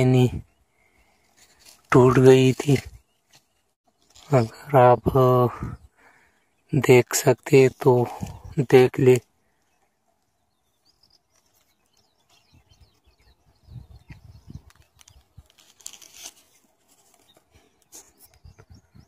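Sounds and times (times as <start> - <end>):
dry nest material rustling: 0.0 - 5.5, 13.9 - 18.7.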